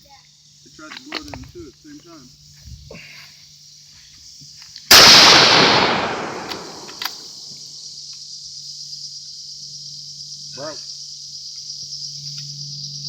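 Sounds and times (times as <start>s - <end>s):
rifle shot: 4.9s - 7.3s
faint click: 6.3s - 7.2s.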